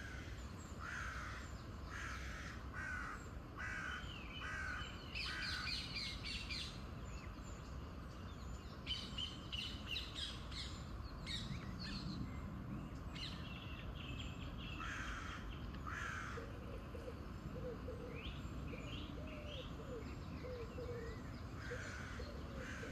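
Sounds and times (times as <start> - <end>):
birds calling harshly: 0.0 - 7.4, 13.2 - 22.9.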